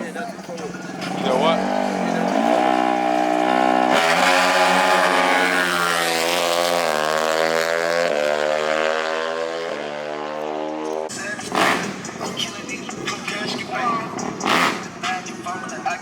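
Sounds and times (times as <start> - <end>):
racing engine revving: 0.7 - 15.7.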